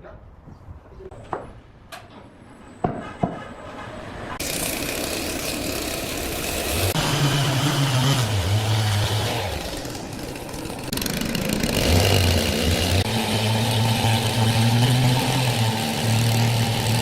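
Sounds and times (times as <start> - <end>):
sawmill machinery hum: 4.4 - 17.0.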